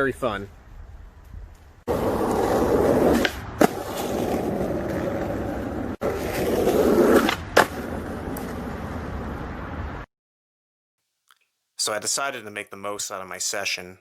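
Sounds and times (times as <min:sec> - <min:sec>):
skateboard wheels rolling on wet pavement: 0:01.9 - 0:10.1.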